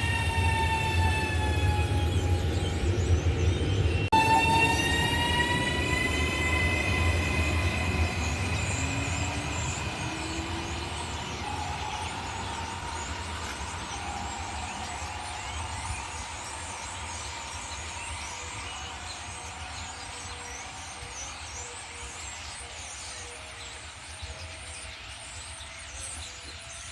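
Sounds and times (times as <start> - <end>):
high whining tone: 0.0 - 21.1
train rumbling on rails: 0.0 - 26.9.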